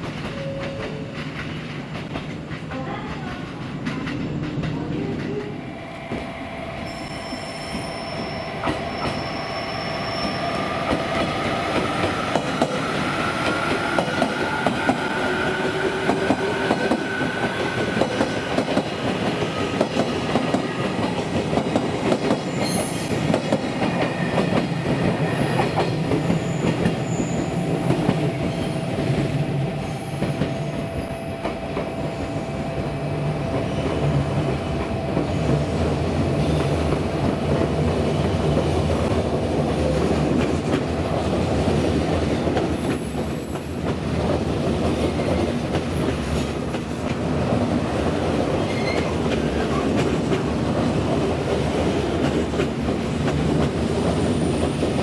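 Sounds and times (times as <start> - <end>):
train wheels clattering over rail joints: 0.0 - 5.4
high-pitched wheel squeals: 6.8 - 10.9.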